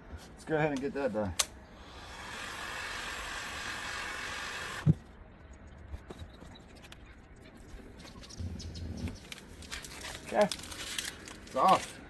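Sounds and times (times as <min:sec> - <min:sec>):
heat gun blowing with whine: 0:01.8 - 0:05.0.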